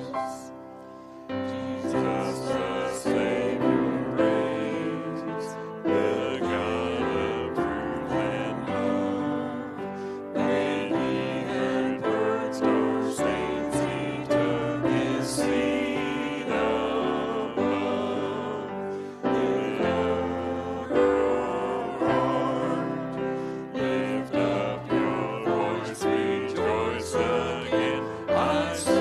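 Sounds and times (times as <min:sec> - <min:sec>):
voices singing: 0:00.0 - 0:00.6, 0:01.2 - 0:29.0
keyboard: 0:00.0 - 0:29.0.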